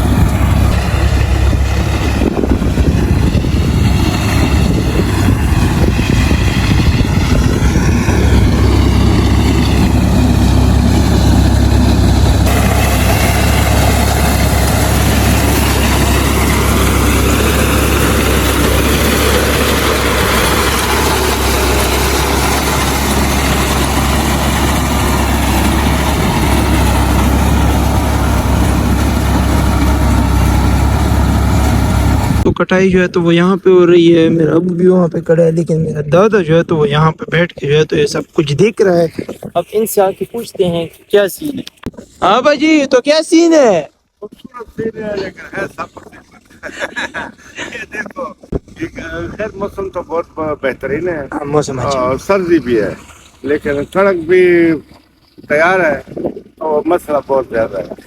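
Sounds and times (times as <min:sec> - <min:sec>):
tractor engine running: 0:00.0 - 0:33.0, 0:48.8 - 0:58.0.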